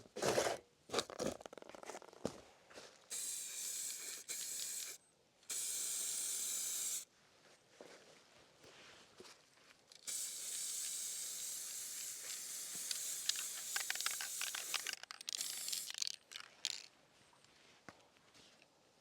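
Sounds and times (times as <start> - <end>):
spray can hissing: 3.1 - 7.0, 10.0 - 16.9.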